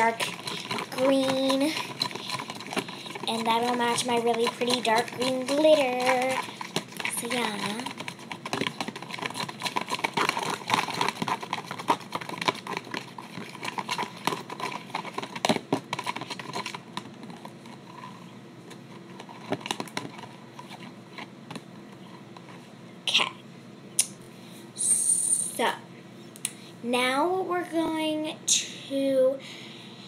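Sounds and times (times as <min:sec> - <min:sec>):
fork stirring in a cup: 0:00.0 - 0:18.2.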